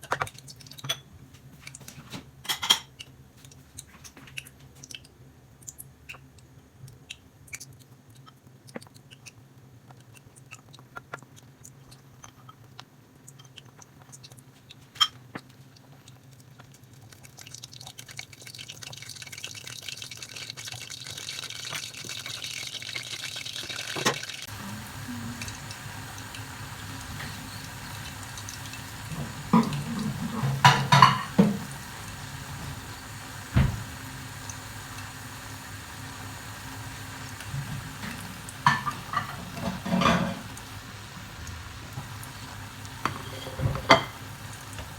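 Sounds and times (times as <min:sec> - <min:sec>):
water running from a tap: 0:17.4 - 0:44.9
dishes and utensils clinking: 0:24.0 - 0:34.0, 0:37.1 - 0:44.9
dishes clattering: 0:24.0 - 0:35.0, 0:36.0 - 0:44.9.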